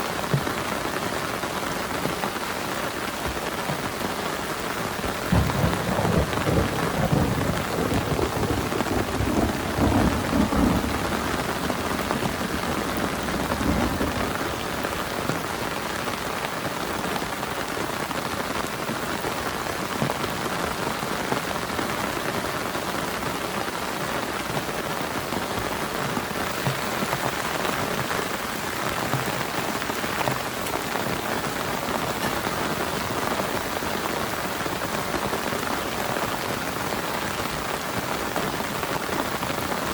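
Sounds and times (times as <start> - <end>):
heavy rain pattering: 0.0 - 39.9
low thunder rumble: 5.3 - 15.6.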